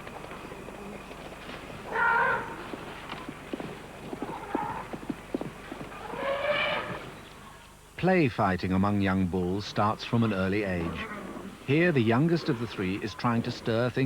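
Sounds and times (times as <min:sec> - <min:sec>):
elephant trumpeting: 0:01.9 - 0:02.6.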